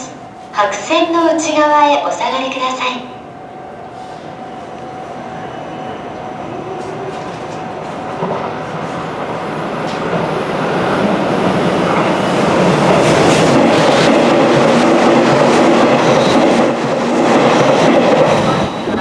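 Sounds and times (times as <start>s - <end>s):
electric train running: 6.8s - 19.0s.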